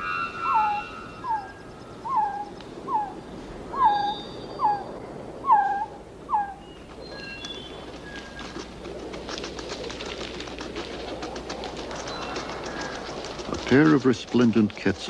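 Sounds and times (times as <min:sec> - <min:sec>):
birds whistling and chirping: 0:00.0 - 0:08.5
forest bird calling: 0:00.0 - 0:08.8.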